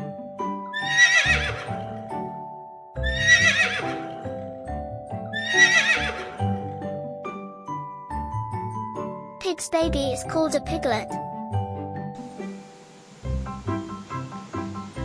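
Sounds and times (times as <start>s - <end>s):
light children's music: 0.0s - 15.0s
horse whinnying: 0.8s - 1.8s, 3.0s - 4.2s, 5.3s - 6.4s.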